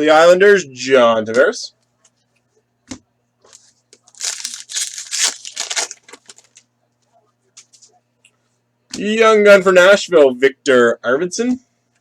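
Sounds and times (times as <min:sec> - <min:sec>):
card pack wrapper tearing: 0:04.1 - 0:06.6.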